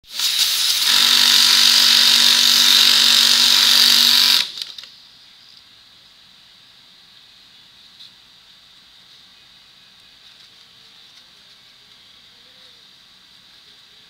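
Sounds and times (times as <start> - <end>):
sewing machine whirring: 0.1 - 4.7
faint steady hum: 4.5 - 14.0.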